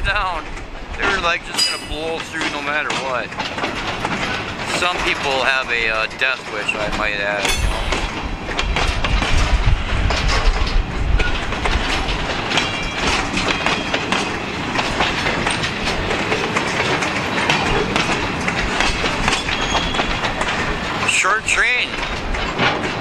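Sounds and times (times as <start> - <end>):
freight wagon wheels clickety-clack: 0.0 - 23.0
faint high wheel squeal: 19.4 - 20.2.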